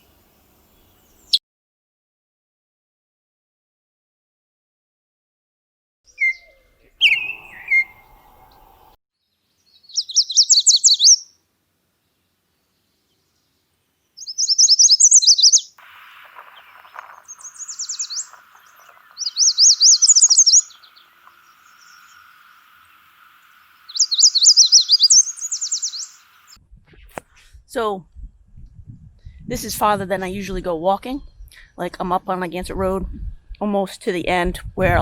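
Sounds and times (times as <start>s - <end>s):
songbird trilling: 6.1s - 8.9s, 9.8s - 11.3s, 14.2s - 26.6s.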